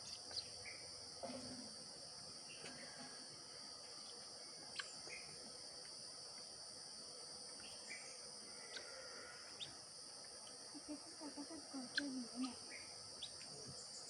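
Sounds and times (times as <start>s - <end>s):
faint high-pitched drone: 10.8s - 14.0s.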